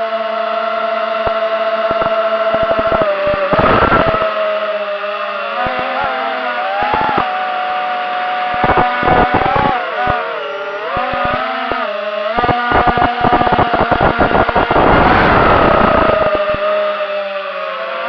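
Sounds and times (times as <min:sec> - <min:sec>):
drone motors whining: 0:00.0 - 0:18.0
short crackles: 0:01.3 - 0:04.3, 0:12.4 - 0:16.6.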